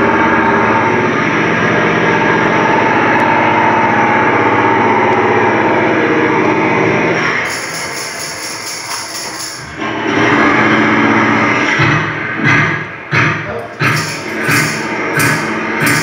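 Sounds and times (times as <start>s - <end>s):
engine-like machine drone: 0.0s - 16.0s.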